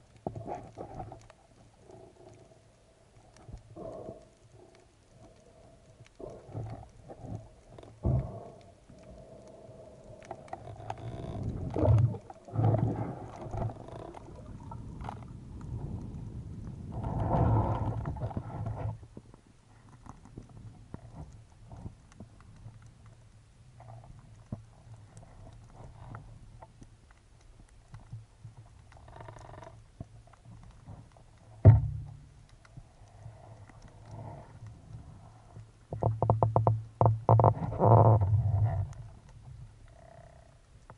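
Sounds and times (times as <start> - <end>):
small clicks: 0.0 - 16.2, 17.0 - 40.9
underwater rumbling and gurgling: 0.0 - 40.9.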